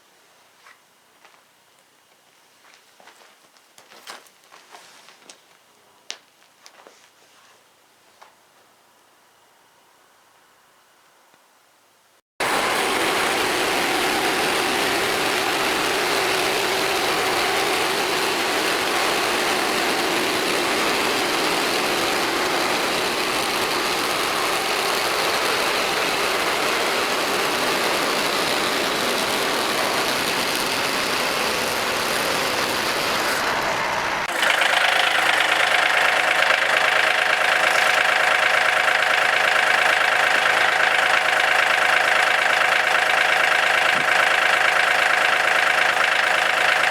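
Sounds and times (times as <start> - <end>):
sawmill gasoline engine running: 12.4 - 46.9.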